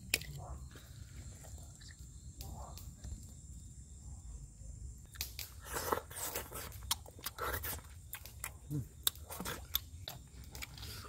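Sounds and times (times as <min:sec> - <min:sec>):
person crunching and chewing: 0:05.1 - 0:11.0.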